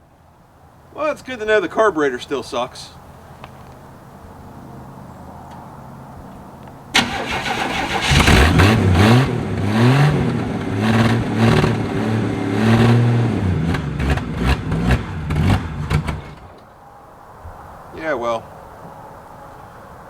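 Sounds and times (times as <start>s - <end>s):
starter turning over engine: 7.0s - 8.9s
pickup engine revving unevenly: 7.2s - 16.6s.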